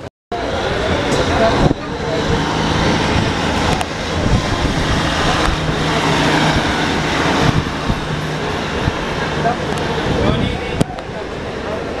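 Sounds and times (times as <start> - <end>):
wheel and rail noise: 0.0 - 12.0
wind rushing: 0.9 - 11.6.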